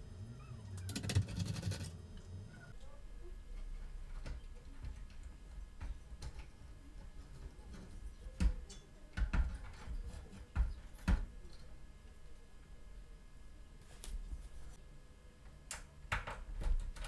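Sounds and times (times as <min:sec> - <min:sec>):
computer parts clicking and knocking: 0:00.2 - 0:02.6.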